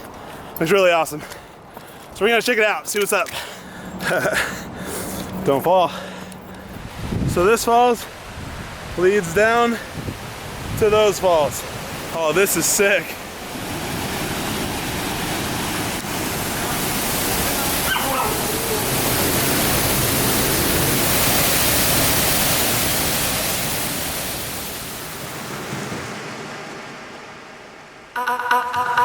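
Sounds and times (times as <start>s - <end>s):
waterfall roaring: 3.3s - 28.2s
music: 28.2s - 29.0s.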